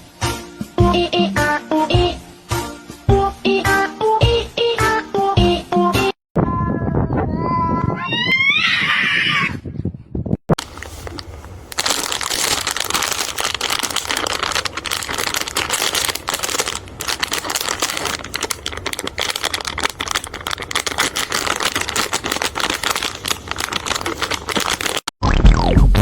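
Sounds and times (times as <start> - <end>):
crinkling crackling noise: 10.5 - 25.1.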